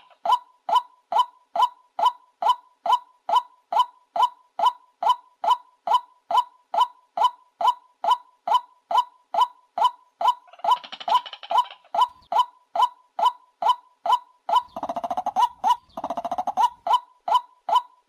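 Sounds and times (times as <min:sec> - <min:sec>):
rapid rattling bird chatter: 0:10.4 - 0:12.4, 0:14.6 - 0:16.9.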